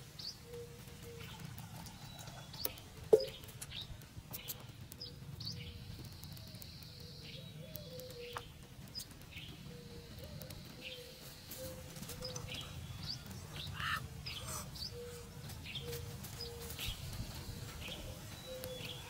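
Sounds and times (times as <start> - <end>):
forest birds chirping: 0.0 - 19.0
sharp knock: 3.1 - 3.4.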